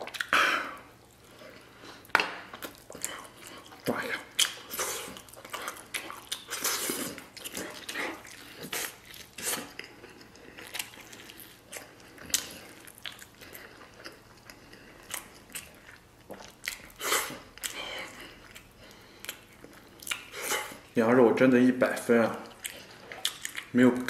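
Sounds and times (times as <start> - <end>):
biting and chewing meat: 0.0 - 20.9, 22.2 - 24.0.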